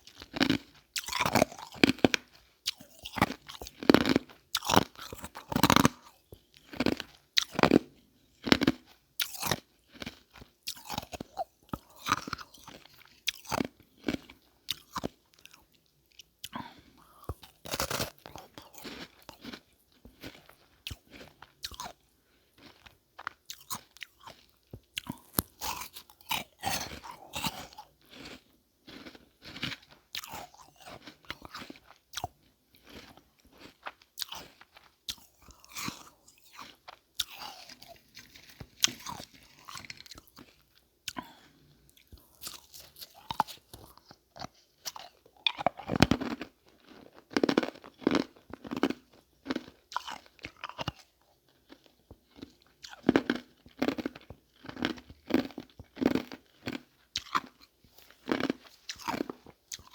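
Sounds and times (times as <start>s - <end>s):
crunching ice marbles: 25.0s - 28.4s.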